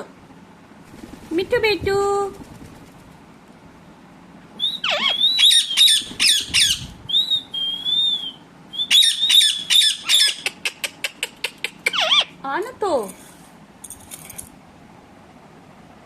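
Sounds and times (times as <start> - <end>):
parrot wavering whistle: 4.6 - 10.5
parrot shrill chirps: 4.6 - 10.7, 11.9 - 12.4.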